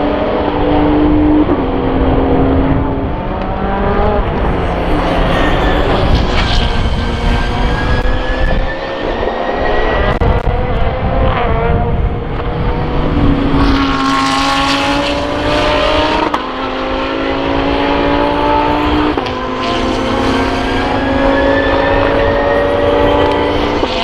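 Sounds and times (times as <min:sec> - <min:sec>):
cars passing: 0:00.0 - 0:24.0
race car engines accelerating: 0:00.0 - 0:24.0
gear upshifts: 0:03.2 - 0:10.7.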